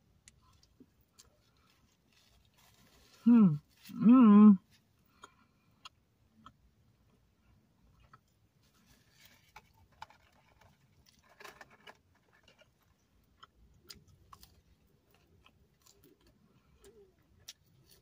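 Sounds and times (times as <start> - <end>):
chewing: 5.0 - 18.0.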